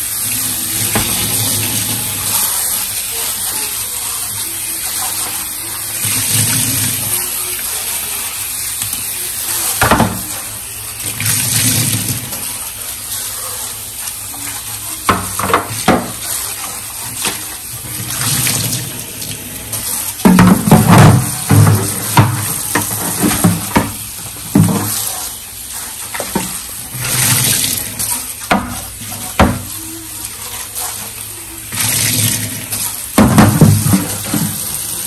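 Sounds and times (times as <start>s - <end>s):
tap running into sink: 0.4s - 2.4s, 9.8s - 12.5s, 15.0s - 16.3s, 17.1s - 25.1s, 26.1s - 29.8s, 31.7s - 34.9s.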